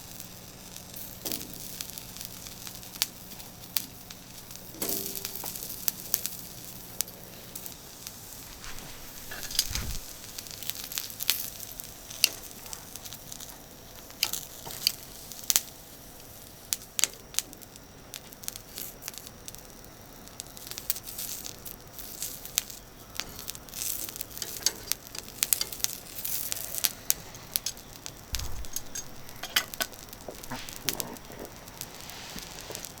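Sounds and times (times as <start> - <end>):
charcoal grill crackling and sizzling: 0.0 - 33.0
sharp pops: 26.0 - 33.0.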